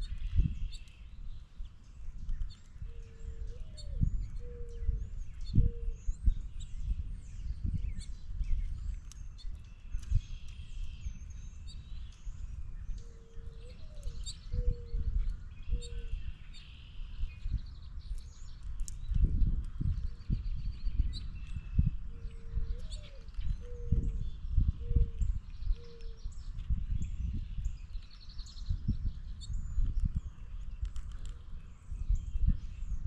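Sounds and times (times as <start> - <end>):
wild birds chirping: 0.0 - 33.0
low cooing call: 2.9 - 5.0, 13.0 - 15.1.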